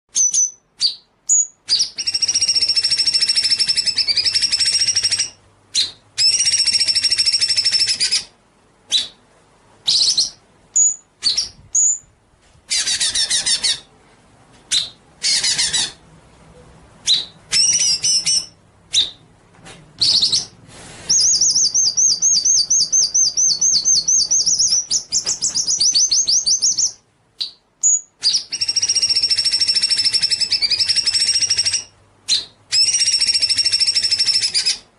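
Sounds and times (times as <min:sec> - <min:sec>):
bird chirps and whistles: 0:00.1 - 0:08.3, 0:08.9 - 0:09.2, 0:09.8 - 0:12.1, 0:12.7 - 0:13.9, 0:14.7 - 0:16.0, 0:17.0 - 0:19.2, 0:20.0 - 0:34.9
bird rattling trill: 0:01.8 - 0:05.3, 0:06.2 - 0:08.2, 0:28.2 - 0:31.9, 0:32.8 - 0:34.7.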